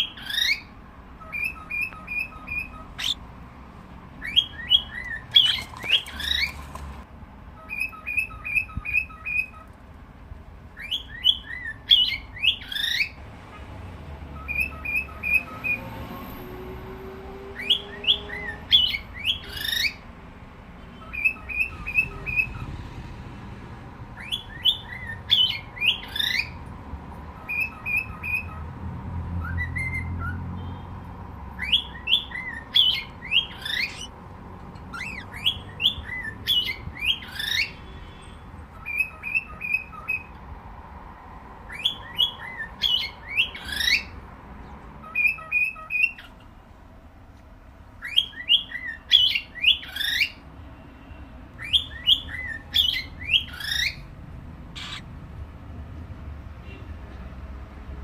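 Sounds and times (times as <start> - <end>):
cockatiel chirps: 0.0 - 3.2, 4.2 - 6.7, 7.6 - 9.8, 10.8 - 13.2, 14.4 - 15.8, 17.6 - 20.0, 21.0 - 22.7, 24.2 - 26.6, 27.4 - 28.6, 29.4 - 30.4, 31.6 - 34.1, 34.9 - 37.8, 38.7 - 40.4, 41.7 - 44.1, 45.0 - 46.5, 48.0 - 50.4, 51.6 - 54.1, 54.7 - 55.1
cockatiel whistling: 0.0 - 3.2, 4.2 - 6.5, 10.8 - 13.2, 21.0 - 22.6, 24.2 - 26.5, 27.4 - 28.6, 31.6 - 34.1, 34.9 - 37.7, 38.8 - 40.3, 41.7 - 44.1, 48.0 - 50.4, 51.6 - 54.0, 54.8 - 55.0.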